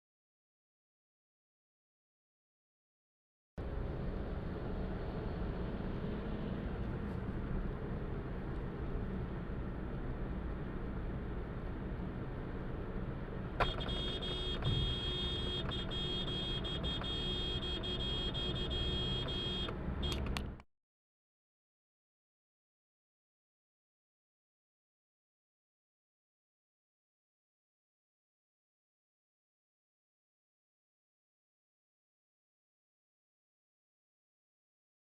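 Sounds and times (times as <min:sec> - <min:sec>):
car road and engine noise: 0:03.6 - 0:20.6
sharp click: 0:20.1 - 0:20.6.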